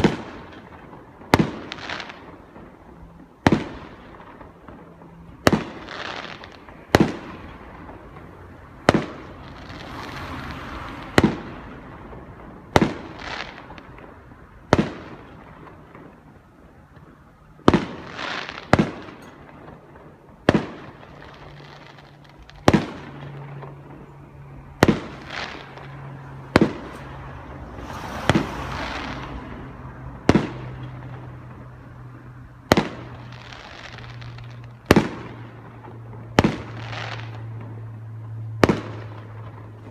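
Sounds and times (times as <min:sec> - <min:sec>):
distant firework bangs: 0:00.0 - 0:39.9
firework hiss: 0:08.9 - 0:11.8, 0:27.7 - 0:29.7.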